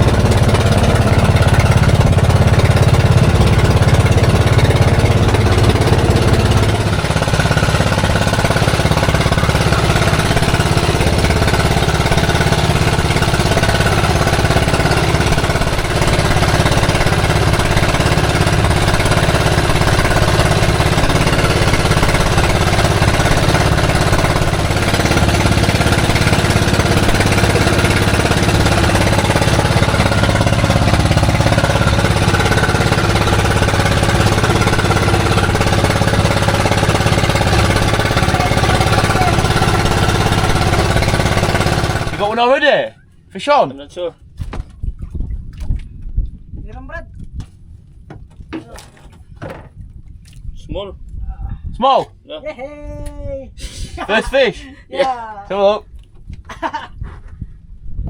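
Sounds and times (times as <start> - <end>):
boat engine chugging: 0.0 - 46.4.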